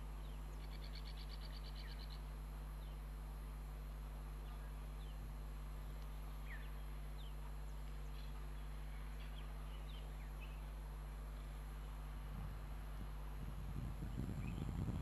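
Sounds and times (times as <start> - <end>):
birds chirping: 0.0 - 3.1, 4.4 - 11.8, 14.0 - 14.9
steady low hum: 0.0 - 15.0.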